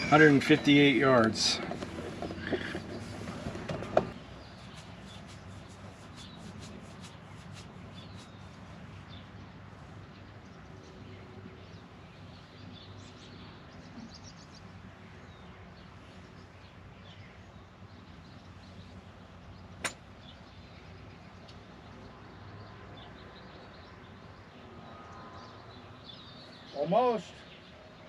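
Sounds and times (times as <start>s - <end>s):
golf club striking ball: 19.8s - 20.1s.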